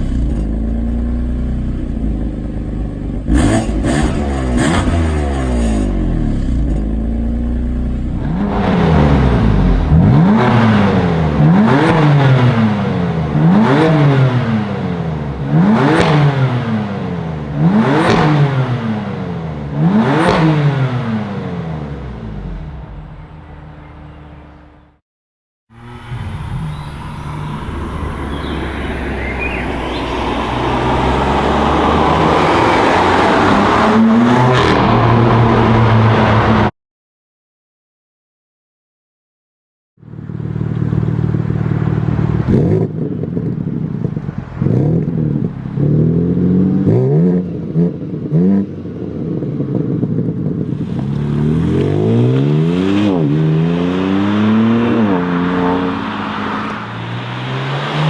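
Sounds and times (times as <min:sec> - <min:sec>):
car engine revving: 0:00.0 - 0:25.0, 0:25.7 - 0:36.7, 0:40.0 - 0:58.0
car engine running: 0:40.0 - 0:45.8.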